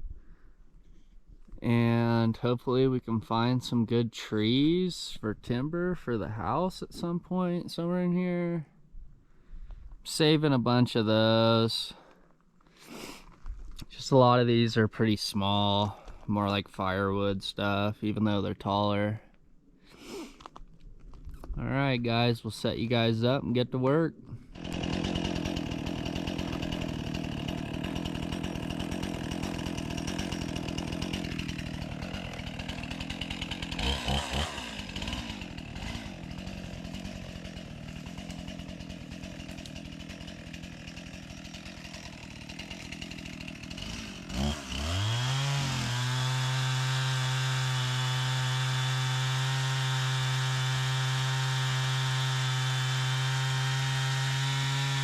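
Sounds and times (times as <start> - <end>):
chainsaw engine revving: 24.4 - 55.0.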